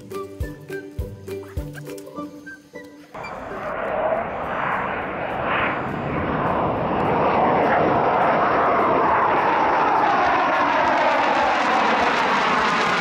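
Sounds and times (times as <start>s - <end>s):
faint falling tones: 3.2s - 10.7s
jet aircraft passing over: 3.2s - 13.0s.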